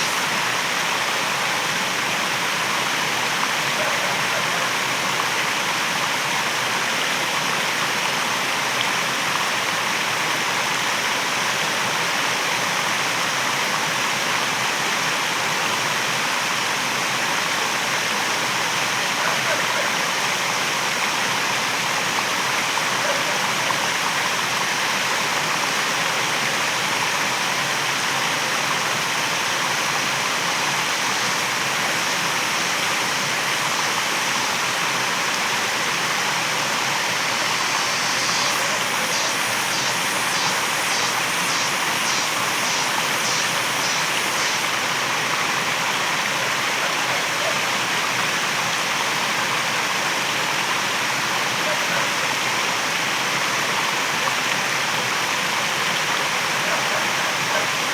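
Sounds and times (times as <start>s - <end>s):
waterfall rushing: 0.0s - 11.4s, 18.8s - 51.5s
high pulsing sound: 30.8s - 35.0s, 36.6s - 45.0s.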